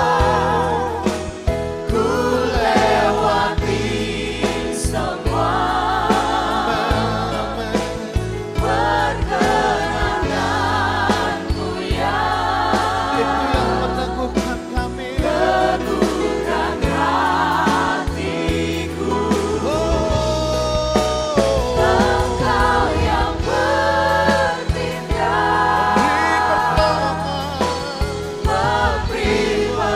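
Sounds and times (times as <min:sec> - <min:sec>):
voices singing: 0:00.0 - 0:01.3, 0:01.9 - 0:29.9
worship band playing: 0:00.0 - 0:29.9.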